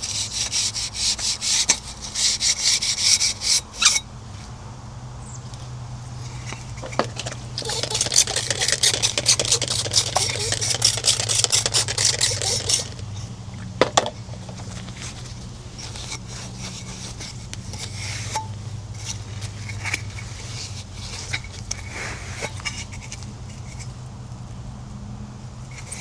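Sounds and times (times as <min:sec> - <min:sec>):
rhythmic scrubbing strokes: 0:07.6 - 0:13.0.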